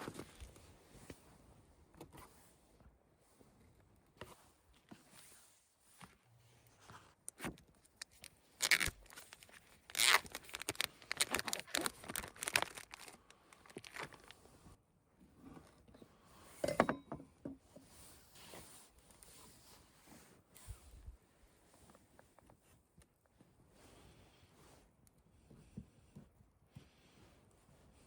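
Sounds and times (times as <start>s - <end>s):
crinkling and tearing: 7.2s - 14.5s.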